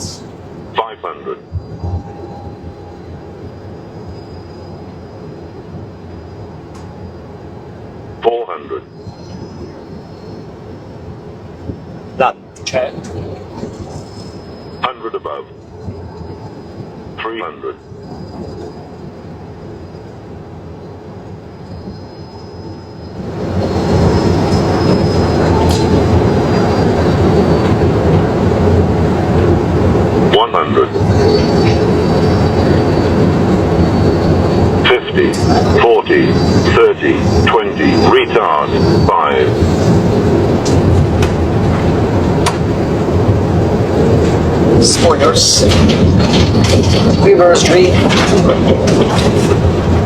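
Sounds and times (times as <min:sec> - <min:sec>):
low rumble of airflow and engines: 0:00.0 - 0:21.8, 0:22.8 - 0:50.0.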